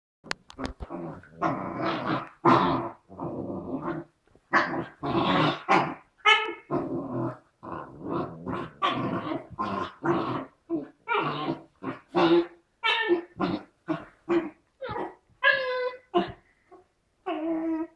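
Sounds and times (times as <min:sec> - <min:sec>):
dogs growling: 0:00.5 - 0:17.9
dog yelp: 0:12.8 - 0:13.3.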